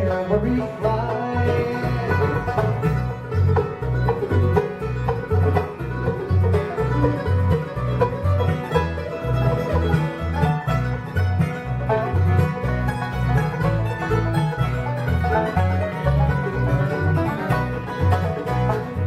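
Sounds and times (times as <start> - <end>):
banjo: 0.0 - 19.0
bass notes: 0.0 - 19.0
bluegrass band playing: 0.0 - 19.0.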